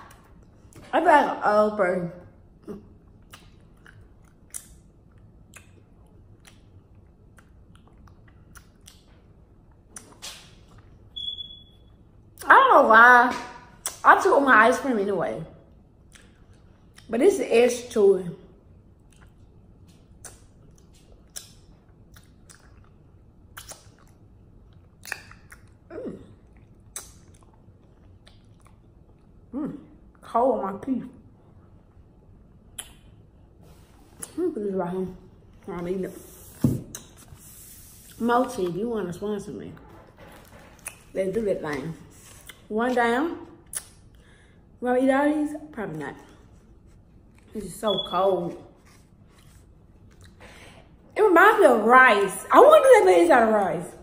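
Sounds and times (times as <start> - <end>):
person chewing with mouth clicks: 3.1 - 9.1, 19.0 - 29.3.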